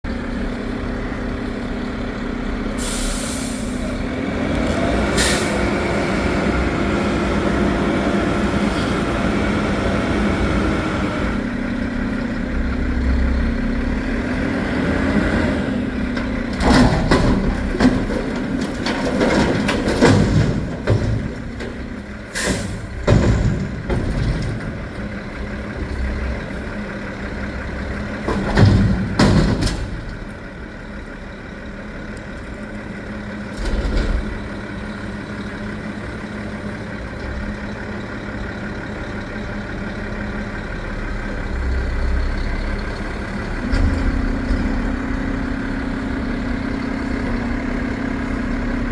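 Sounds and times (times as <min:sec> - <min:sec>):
diesel truck engine running: 0:00.0 - 0:48.9
air brake hisses: 0:02.8 - 0:04.0, 0:05.2 - 0:05.6, 0:22.3 - 0:22.9
bins clattering into truck: 0:16.3 - 0:25.0, 0:28.2 - 0:30.2.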